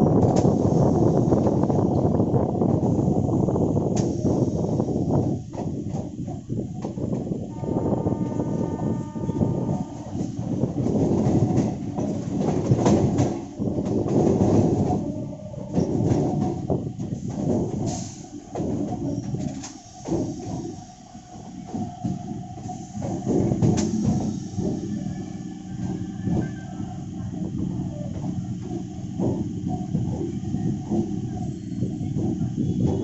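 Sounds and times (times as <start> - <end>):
train wheels clattering on rails: 0.0 - 33.0.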